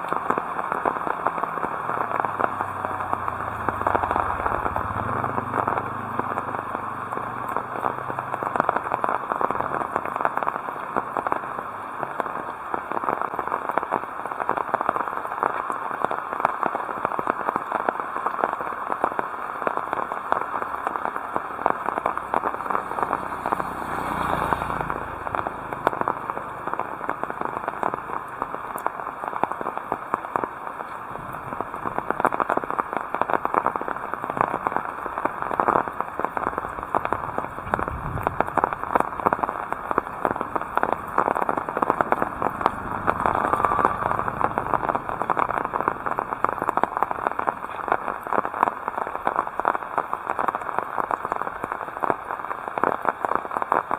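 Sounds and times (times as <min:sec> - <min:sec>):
heavy rain falling: 0:00.0 - 0:53.9
low rumbles: 0:34.1 - 0:48.2.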